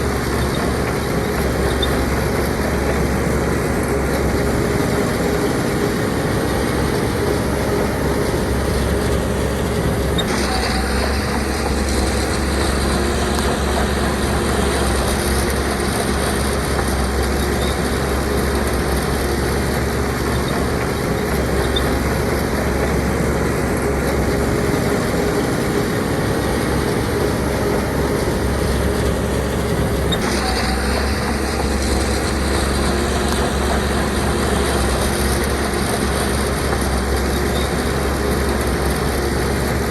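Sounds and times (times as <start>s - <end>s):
diesel earthmoving machinery running: 0.0s - 39.9s.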